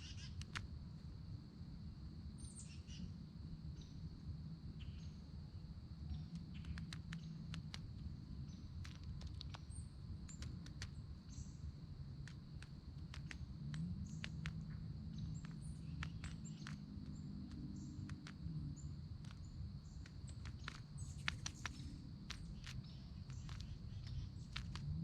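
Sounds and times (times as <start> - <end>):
woodpecker tapping: 0.0 - 0.6, 6.1 - 25.0
low steady hum: 0.0 - 25.0.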